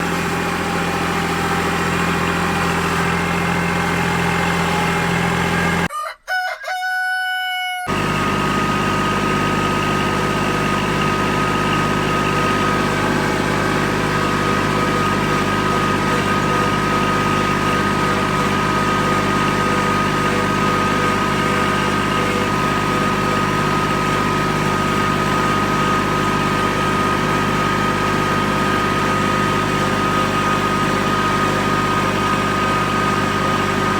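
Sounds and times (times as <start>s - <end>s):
tractor engine running: 0.0s - 5.9s, 7.9s - 33.9s
rooster crowing: 5.8s - 8.0s.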